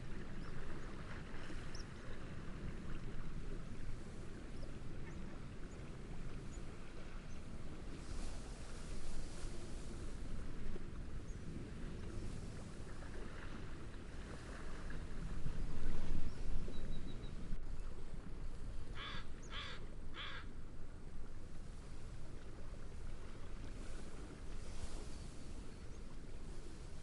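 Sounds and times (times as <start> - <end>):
waves: 0.0 - 27.0
wind: 0.0 - 27.0
bird giving harsh calls: 19.0 - 20.4.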